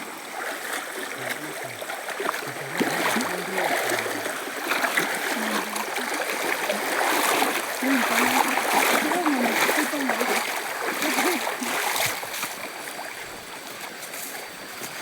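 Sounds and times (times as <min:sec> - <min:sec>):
stream splashing and trickling: 0:00.0 - 0:15.0
faint low voices: 0:05.2 - 0:11.8.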